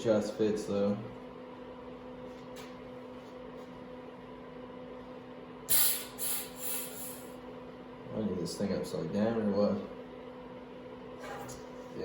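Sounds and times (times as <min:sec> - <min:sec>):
steady low hum: 0:00.0 - 0:12.0
aerosol can hissing: 0:05.7 - 0:07.3.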